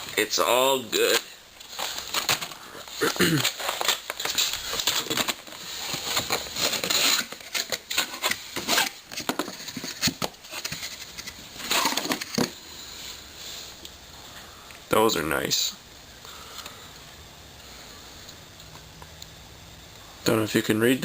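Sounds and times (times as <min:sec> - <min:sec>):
packaging rustling and crinkling: 0:00.0 - 0:13.2.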